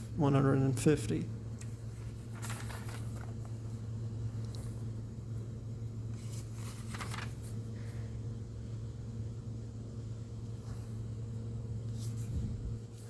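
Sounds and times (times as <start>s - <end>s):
low room hum: 0.0s - 13.0s
paper pages rustling: 1.6s - 3.8s, 6.1s - 7.7s.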